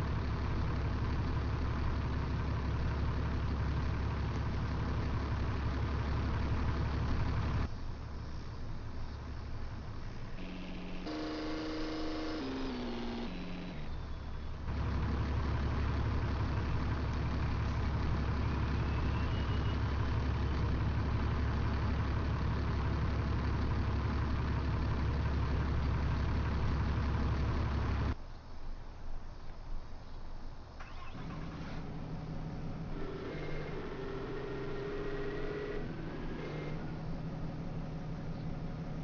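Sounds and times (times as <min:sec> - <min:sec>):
truck engine idling: 0:00.0 - 0:28.2, 0:30.8 - 0:39.0
falling electronic tones: 0:10.4 - 0:14.1.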